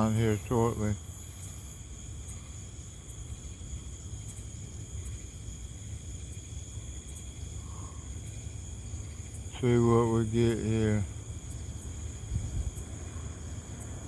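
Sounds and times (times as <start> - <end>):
insects trilling: 0.0 - 14.0
low rumbling noise: 7.4 - 14.0.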